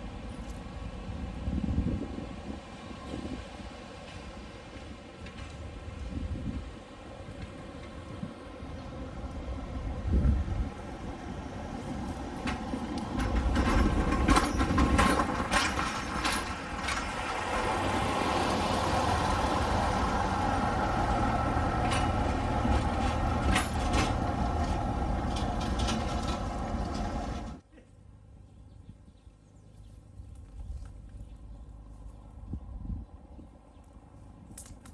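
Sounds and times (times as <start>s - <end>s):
train rumbling past: 0.0s - 27.6s
sharp clanks: 21.6s - 27.6s.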